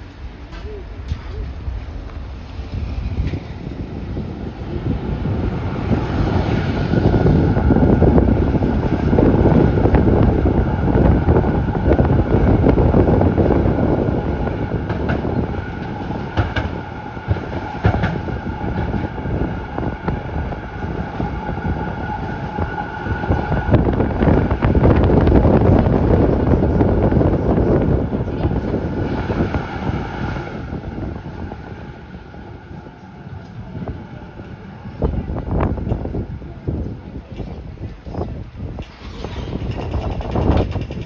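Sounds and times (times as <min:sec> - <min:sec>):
tram wheels rumbling on rails: 0:00.0 - 0:41.0
wheel clicks: 0:38.8 - 0:41.0.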